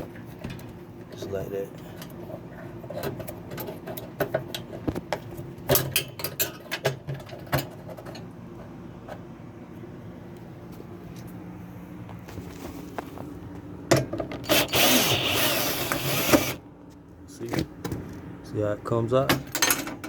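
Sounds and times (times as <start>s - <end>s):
steady low hum: 0.0s - 20.0s
metal parts clanking and rattling: 5.7s - 8.3s, 19.2s - 20.0s.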